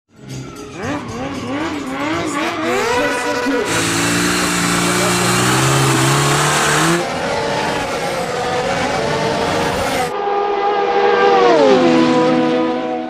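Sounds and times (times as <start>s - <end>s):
vehicle engine and road noise: 0.1s - 10.2s
droning tone gliding down: 0.9s - 13.0s.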